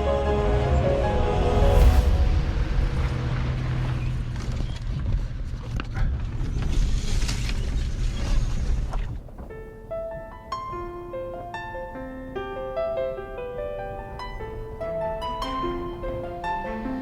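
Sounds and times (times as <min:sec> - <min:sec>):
piano notes: 0:00.0 - 0:04.4, 0:09.4 - 0:17.0
truck engine rumble: 0:00.0 - 0:09.4.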